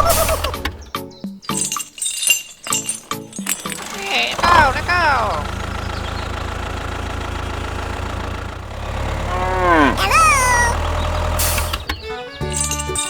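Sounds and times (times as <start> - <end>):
small motor humming: 3.6 - 12.8.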